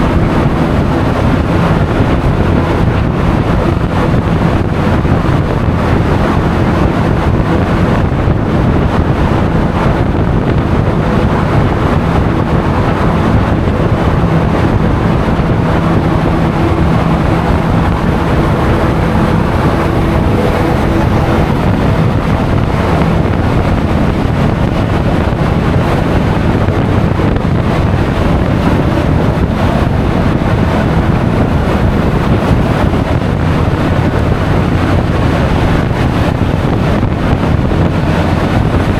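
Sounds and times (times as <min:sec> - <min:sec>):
scooter engine droning: 0:00.0 - 0:38.9
wind rushing over microphone: 0:00.0 - 0:38.9.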